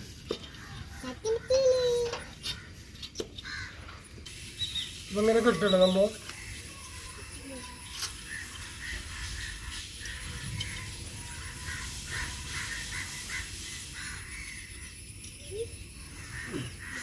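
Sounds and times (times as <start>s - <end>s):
crows cawing: 2.4s - 4.0s, 6.3s - 14.8s, 16.0s - 17.0s.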